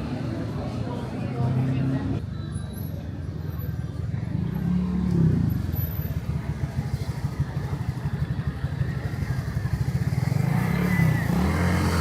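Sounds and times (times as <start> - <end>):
motorbike engine running: 5.6 - 12.0.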